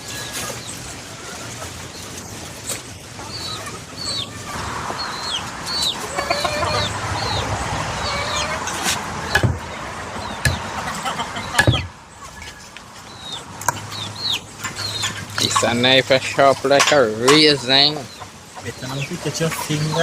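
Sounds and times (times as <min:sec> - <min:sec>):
chickens chirping: 0:00.0 - 0:20.0
chickens clucking: 0:00.0 - 0:20.0
sharp knocks: 0:08.8 - 0:09.7, 0:10.4 - 0:10.7, 0:11.6 - 0:12.0.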